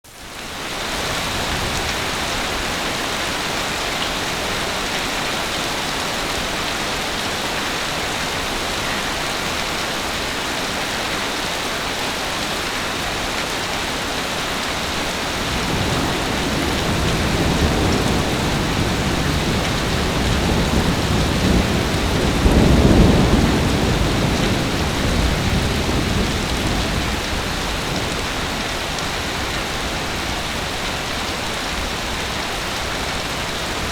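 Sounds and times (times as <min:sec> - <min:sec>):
heavy rain falling: 0:00.1 - 0:33.9
low roll of thunder: 0:15.2 - 0:30.3.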